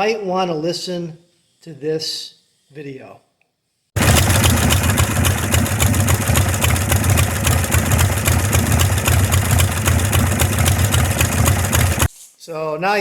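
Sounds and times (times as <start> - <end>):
motorcycle engine idling: 4.0 - 12.1.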